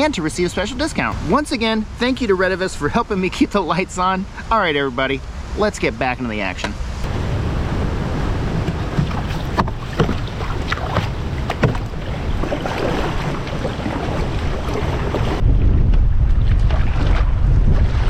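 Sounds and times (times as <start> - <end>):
wind rumble on microphone: 6.7 - 18.0
water splashing against hull: 7.0 - 15.4, 16.2 - 18.0
sharp knocks: 8.6 - 12.1.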